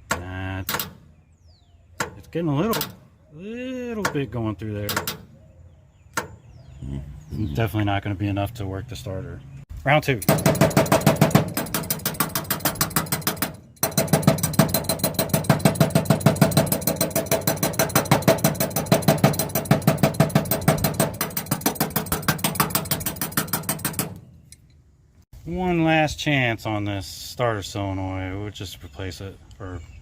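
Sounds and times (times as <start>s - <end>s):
hammer tapping on metal: 2.0s - 3.0s, 4.0s - 5.3s, 10.2s - 24.6s.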